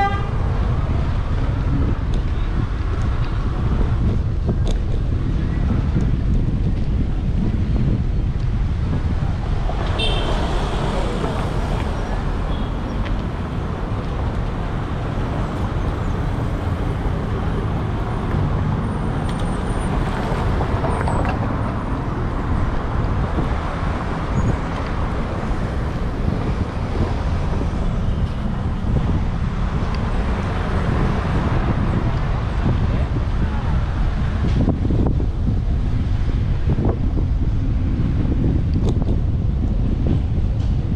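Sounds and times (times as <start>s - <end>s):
road traffic passing: 0.0s - 40.9s
wind rumble on microphone: 0.0s - 40.9s.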